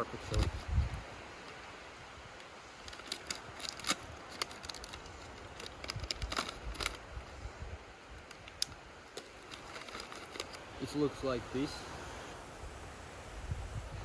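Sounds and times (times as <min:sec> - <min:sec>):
snack packaging crinkling: 0:00.2 - 0:00.7, 0:02.8 - 0:07.1, 0:08.2 - 0:10.6.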